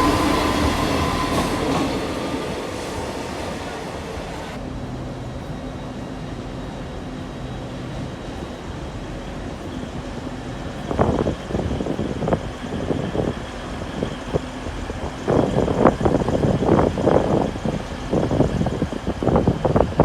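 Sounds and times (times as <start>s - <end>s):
train low hum: 0.0s - 20.0s
train rumbles and knocks: 0.0s - 20.0s.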